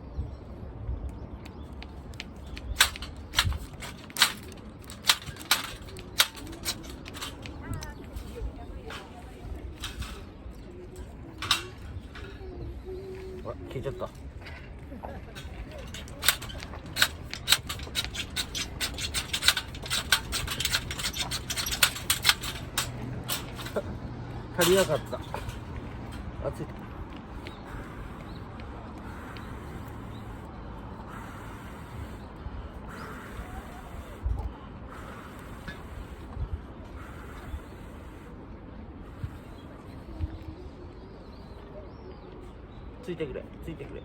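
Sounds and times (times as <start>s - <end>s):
sharp clicks: 1.0s - 8.3s, 15.4s - 24.0s.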